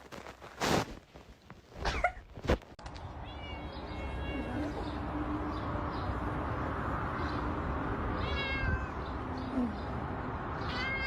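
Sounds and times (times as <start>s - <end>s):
cat meowing: 3.2s - 4.7s, 8.2s - 9.1s, 10.6s - 11.0s.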